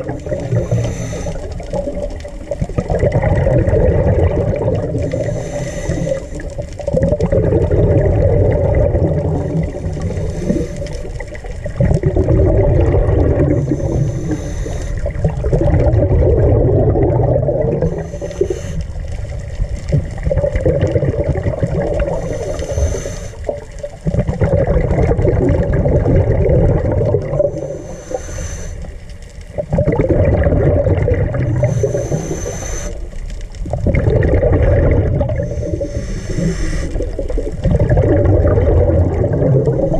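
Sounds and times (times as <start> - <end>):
exhaled bubbles gurgling: 0.0 - 39.9
regulator hiss: 0.4 - 1.7, 5.0 - 6.5, 10.0 - 11.2, 13.5 - 15.2, 17.8 - 19.1, 22.0 - 23.6, 27.5 - 29.1, 31.5 - 33.2, 35.4 - 37.2.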